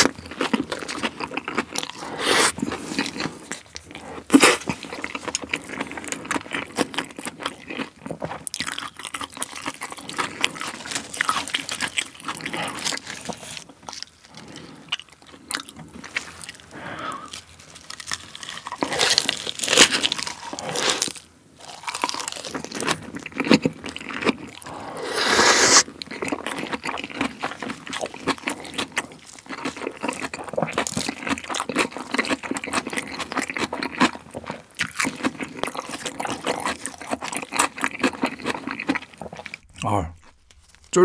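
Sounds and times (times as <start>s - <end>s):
crunchy chewing: 0.0s - 41.0s.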